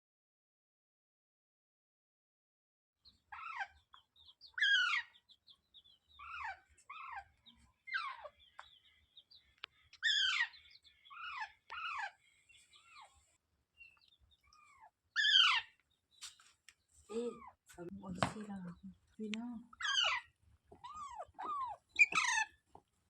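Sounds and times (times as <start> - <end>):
parrot harsh calls: 3.3 - 3.8, 4.6 - 5.2, 6.2 - 7.3, 10.0 - 12.2, 14.5 - 15.8, 19.8 - 22.6.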